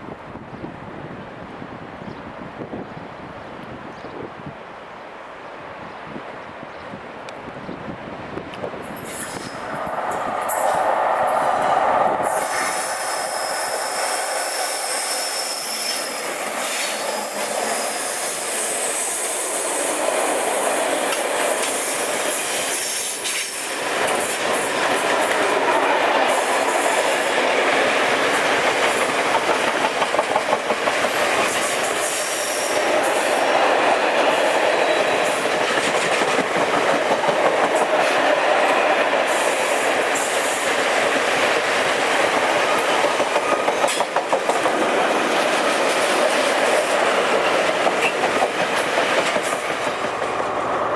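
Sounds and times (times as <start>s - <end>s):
train wheels rumbling on rail: 7.3s - 50.9s
high squealing tones: 12.2s - 19.1s.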